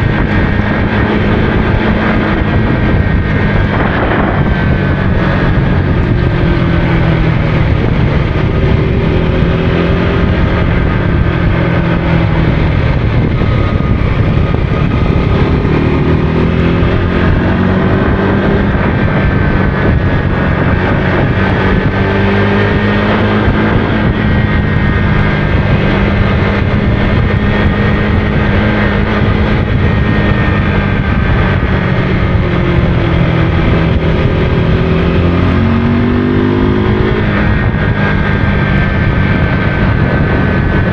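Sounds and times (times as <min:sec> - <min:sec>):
motorcycle engine running: 0:00.0 - 0:40.9
wind rush on microphone: 0:00.0 - 0:40.9.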